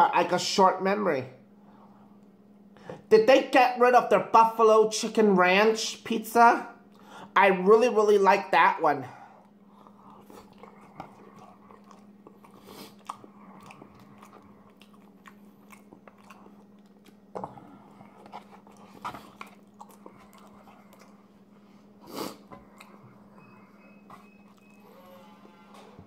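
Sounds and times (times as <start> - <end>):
steady low hum: 0.0 - 26.0
wet chewing sounds: 9.4 - 24.8.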